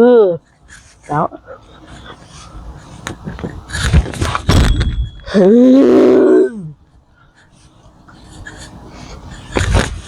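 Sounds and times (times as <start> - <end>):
wordless vocal cry: 5.3 - 6.8.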